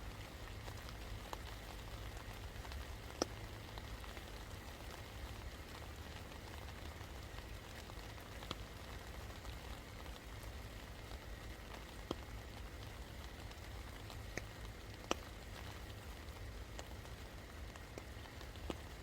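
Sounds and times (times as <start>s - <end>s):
steady rain hiss: 0.0s - 19.0s
drops ticking on a surface: 2.6s - 4.3s, 9.4s - 19.0s.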